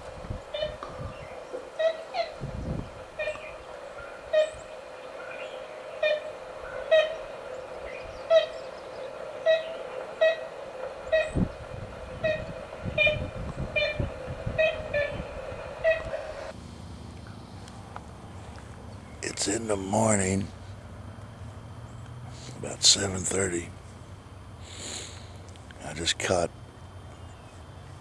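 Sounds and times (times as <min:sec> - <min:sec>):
woodpecker calls: 0:00.0 - 0:20.2
steady hiss: 0:00.0 - 0:28.0.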